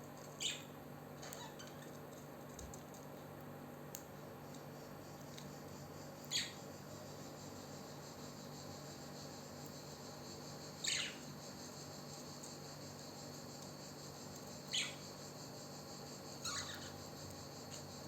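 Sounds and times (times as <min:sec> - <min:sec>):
parrot chirping: 0:06.3 - 0:06.6, 0:16.4 - 0:16.9.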